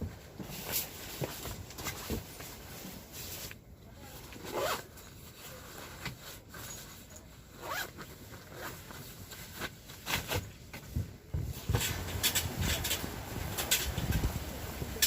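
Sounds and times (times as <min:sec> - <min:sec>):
rustling and handling noise: 0:00.0 - 0:15.0
zipper being pulled: 0:04.4 - 0:04.9, 0:07.6 - 0:08.9.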